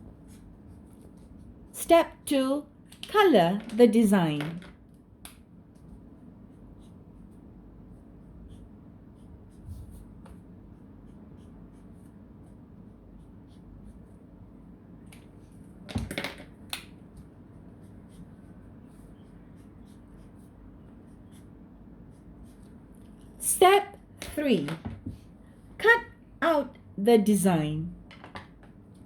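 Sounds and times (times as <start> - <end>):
pencil scratching on paper: 0.2 - 1.7, 5.7 - 14.3, 17.5 - 23.2.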